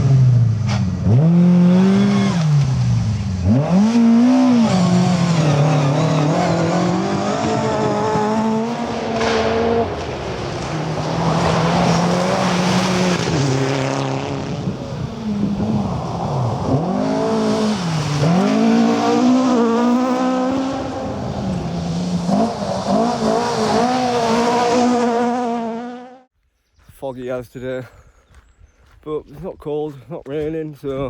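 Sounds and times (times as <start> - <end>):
rally car engine revving: 0.0 - 26.3.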